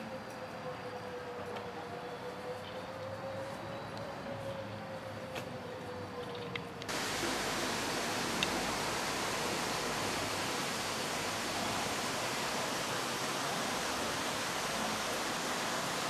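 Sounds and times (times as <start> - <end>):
steady rushing hiss: 6.9 - 16.0.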